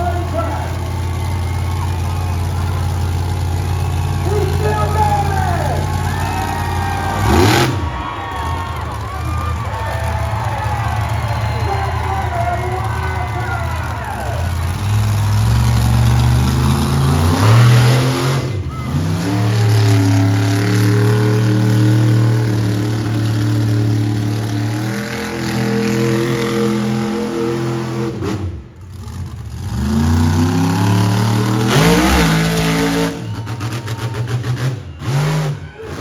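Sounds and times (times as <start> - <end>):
monster truck engine revving: 0.0 - 36.0.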